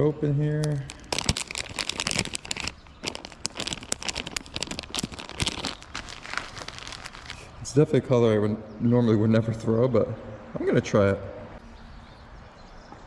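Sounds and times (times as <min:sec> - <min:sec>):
plastic package crinkling and tearing: 0:00.6 - 0:07.5.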